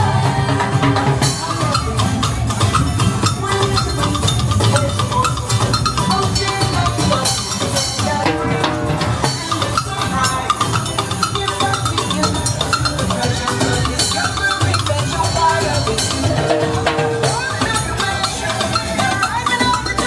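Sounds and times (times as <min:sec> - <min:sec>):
music with drums and hand percussion: 0:00.0 - 0:20.0.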